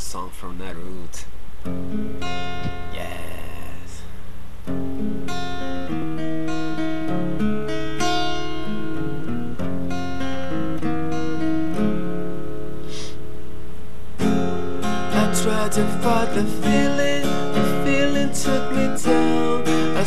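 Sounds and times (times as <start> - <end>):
guitar strumming chords: 1.6 - 13.6, 14.2 - 20.0.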